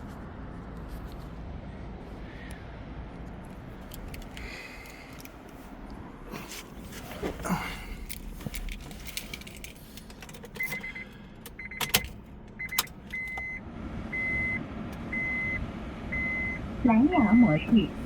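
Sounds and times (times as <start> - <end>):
keys jangling: 3.8 - 5.5, 8.0 - 10.9
car warning chime beeping: 10.5 - 18.0.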